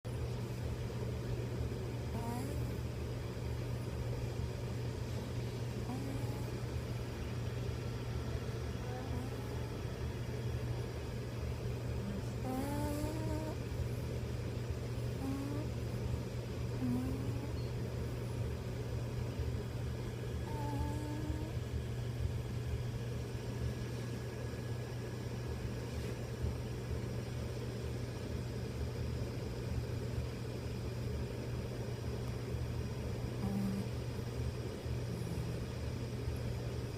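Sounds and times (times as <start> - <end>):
steady low hum: 0.0 - 36.9
dog snoring: 2.1 - 2.9, 5.7 - 6.8, 8.8 - 9.6, 12.0 - 13.6, 15.0 - 15.8, 16.8 - 17.7, 20.4 - 21.6, 33.4 - 34.0, 34.9 - 35.8.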